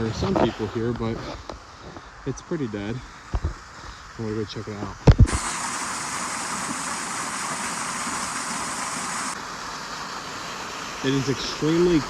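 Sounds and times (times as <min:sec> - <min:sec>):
waterfall rushing: 0:05.2 - 0:12.0.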